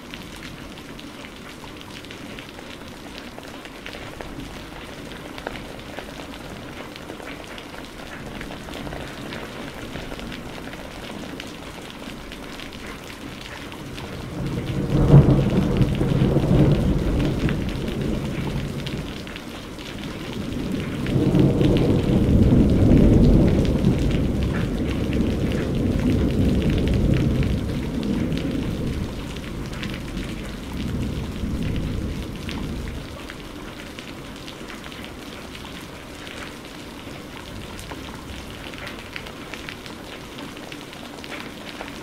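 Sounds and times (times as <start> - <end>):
steady rain falling: 0.0 - 42.0
thunder rumbling: 13.7 - 39.6.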